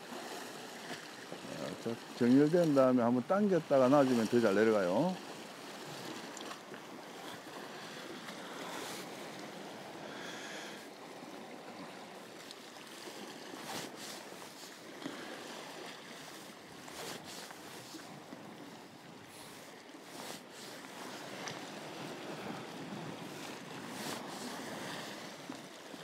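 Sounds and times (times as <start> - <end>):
wind: 0.0 - 26.0
waves washing against rocks: 12.8 - 26.0.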